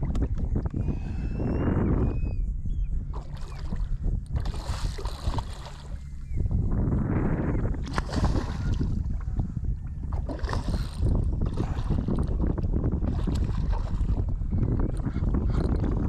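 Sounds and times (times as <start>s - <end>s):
wind buffeting microphone: 0.0s - 16.0s
water slapping against boat hull: 3.1s - 6.0s, 7.8s - 9.5s, 10.1s - 14.3s.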